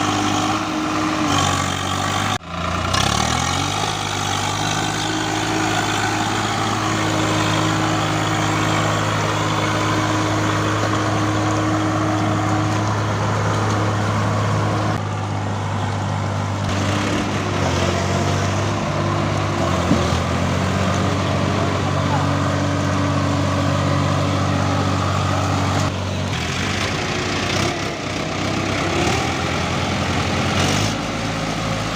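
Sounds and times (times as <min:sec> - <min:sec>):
tractor diesel engine running: 0:00.0 - 0:31.9.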